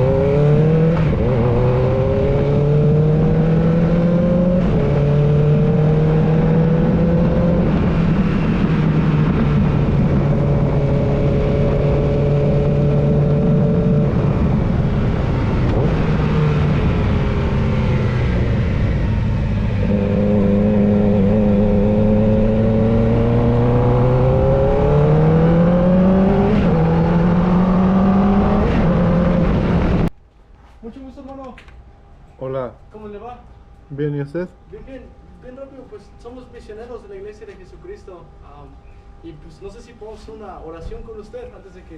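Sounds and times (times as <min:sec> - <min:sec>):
motorcycle engine revving: 0:00.0 - 0:30.1.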